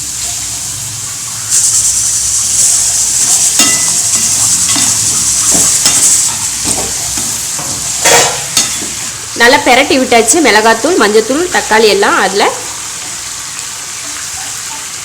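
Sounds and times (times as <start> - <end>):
chicken sizzling in a pan: 0.0 - 15.0
spoon knocking against pan: 3.6 - 9.0.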